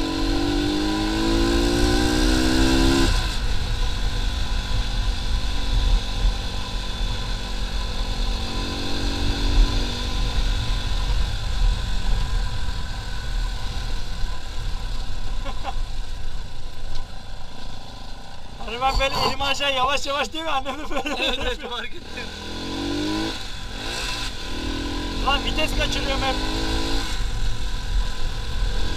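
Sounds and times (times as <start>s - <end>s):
motorcycle engine revving: 0.0s - 15.4s, 21.8s - 28.9s.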